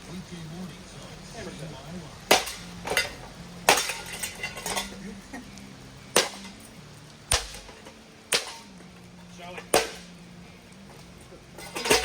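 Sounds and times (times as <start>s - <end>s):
rattling metal parts: 2.3s - 5.0s, 10.9s - 12.0s.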